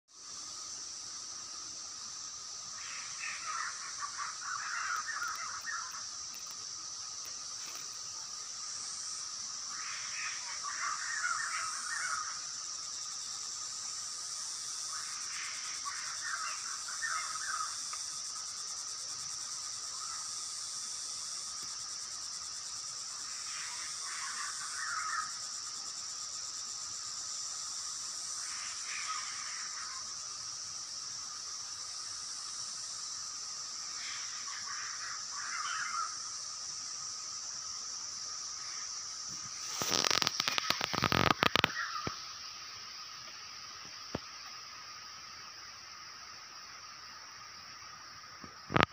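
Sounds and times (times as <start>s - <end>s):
high-pitched insect drone: 0.1s - 48.9s
bird calling: 2.8s - 6.1s, 9.7s - 12.5s, 14.9s - 17.9s, 34.0s - 36.3s, 39.7s - 42.2s.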